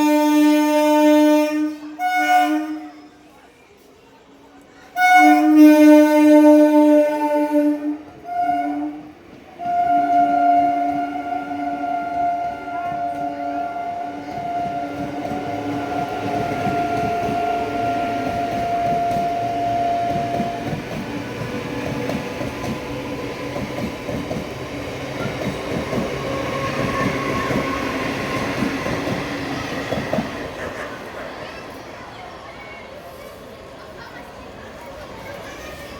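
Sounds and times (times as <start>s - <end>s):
two-toned train horn blast: 0.0s - 3.2s, 5.0s - 20.9s
train wheels clattering over rail joints: 18.1s - 31.2s.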